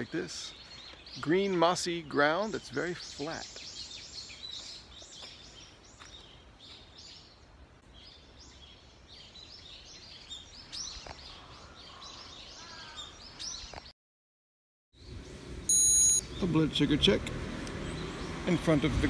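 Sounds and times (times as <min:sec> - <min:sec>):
faint outdoor background: 0:00.0 - 0:13.9, 0:14.9 - 0:19.0
small birds chirping: 0:00.0 - 0:13.9.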